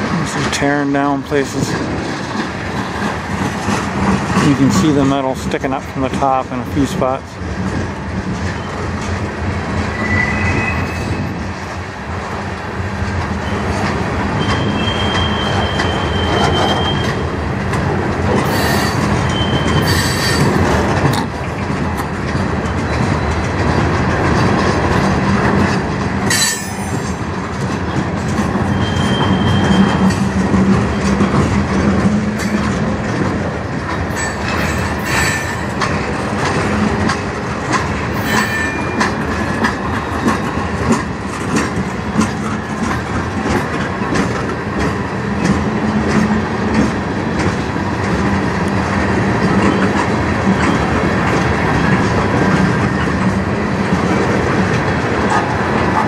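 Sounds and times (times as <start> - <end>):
clickety-clack over rail joints: 0.0 - 56.0
steel wheels rumbling on rails: 0.0 - 56.0
high-pitched wheel squeals: 9.9 - 11.3, 14.4 - 17.2, 18.5 - 20.5, 28.7 - 30.2
sharp clanks: 26.2 - 27.2.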